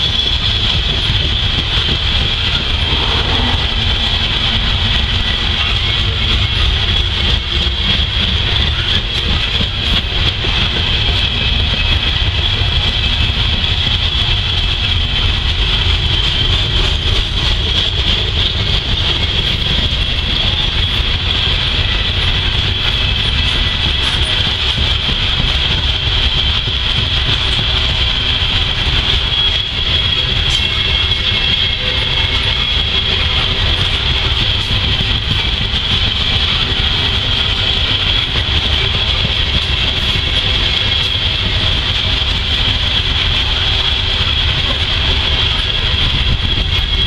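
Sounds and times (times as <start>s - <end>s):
high-pitched whine: 0.0s - 47.0s
train wheels rumbling on track: 0.0s - 47.0s.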